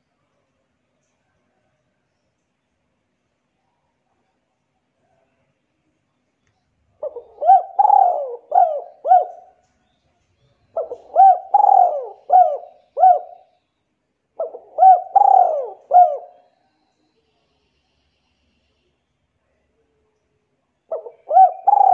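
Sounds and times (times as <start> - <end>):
bird cooing: 7.0 - 9.6, 10.7 - 13.5, 14.4 - 16.5, 20.9 - 21.9.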